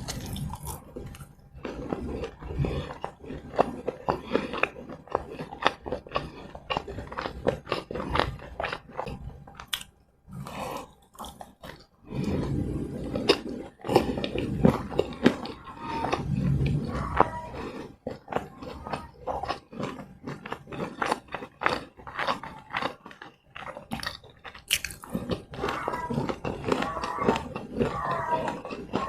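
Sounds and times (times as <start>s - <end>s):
chewing crunchy fried snacks: 0.0s - 29.0s
wet mouth noises: 23.6s - 29.0s.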